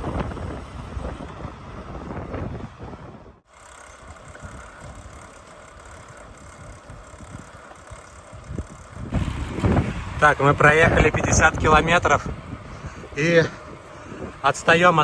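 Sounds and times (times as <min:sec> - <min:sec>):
bike tyres on gravel: 0:00.0 - 0:15.0
wind buffeting microphone: 0:00.0 - 0:15.0.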